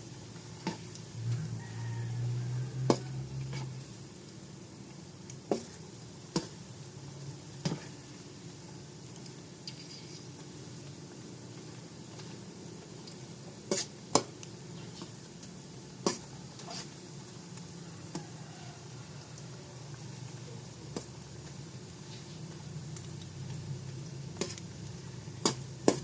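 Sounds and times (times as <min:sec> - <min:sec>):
fries sizzling in hot oil: 0:00.0 - 0:26.0
utensil clicking against pan: 0:24.3 - 0:24.7, 0:25.4 - 0:26.0.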